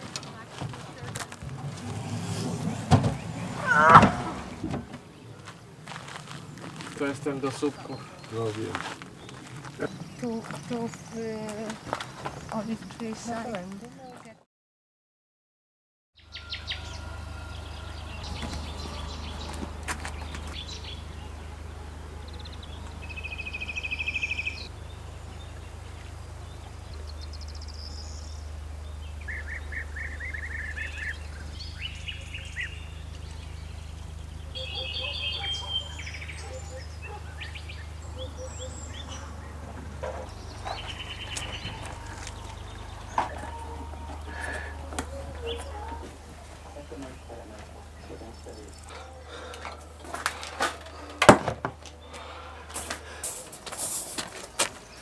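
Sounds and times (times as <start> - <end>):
birds chirping and trilling: 1.4 - 5.8, 7.2 - 13.4, 16.2 - 51.1
steady low rumble: 18.2 - 34.8, 35.8 - 48.9.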